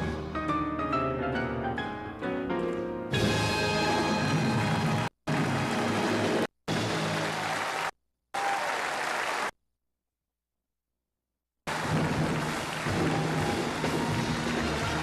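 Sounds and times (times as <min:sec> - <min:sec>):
music: 0:00.0 - 0:07.6, 0:11.7 - 0:15.0
audience applause: 0:04.6 - 0:09.5, 0:11.7 - 0:15.0.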